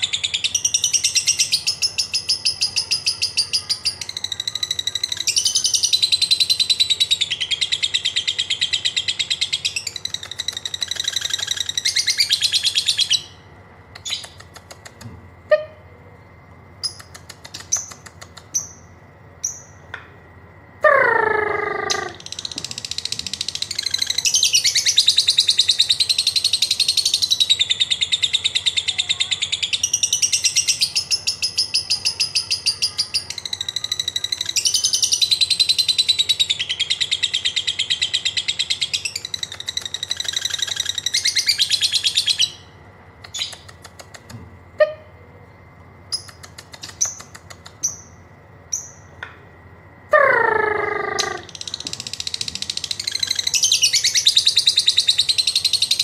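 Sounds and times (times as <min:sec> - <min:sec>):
lovebird chattering trill: 0:00.0 - 0:15.8, 0:16.8 - 0:19.8, 0:20.8 - 0:45.1, 0:46.1 - 0:49.2, 0:50.1 - 0:56.0.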